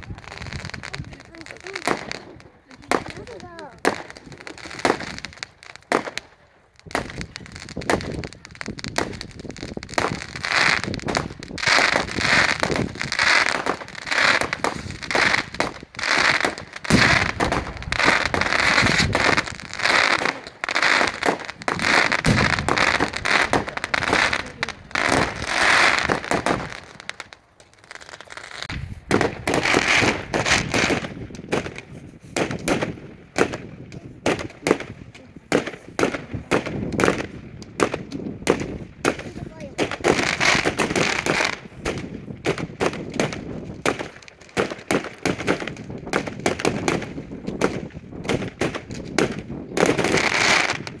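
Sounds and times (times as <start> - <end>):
fireworks banging: 0.0 - 51.0.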